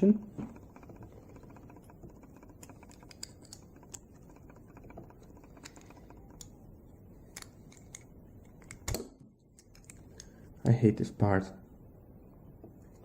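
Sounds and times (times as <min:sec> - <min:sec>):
small metal parts clicking: 0:00.5 - 0:06.6, 0:07.3 - 0:10.4.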